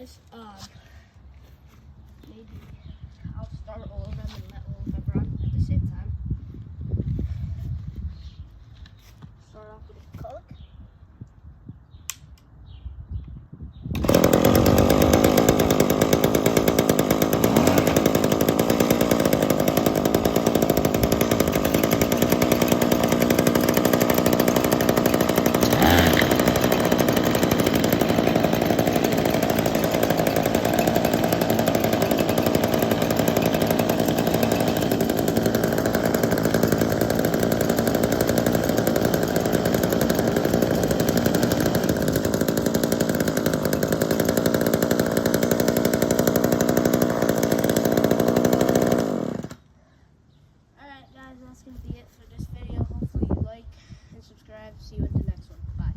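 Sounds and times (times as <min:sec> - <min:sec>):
small gasoline engine running: 0:14.0 - 0:49.7.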